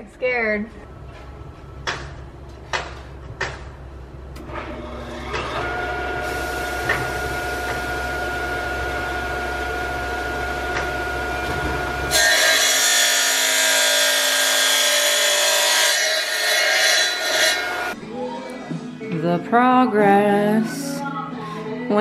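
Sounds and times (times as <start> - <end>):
electric tile saw whining: 4.7 - 18.0
saw grinding into tile: 12.1 - 18.0.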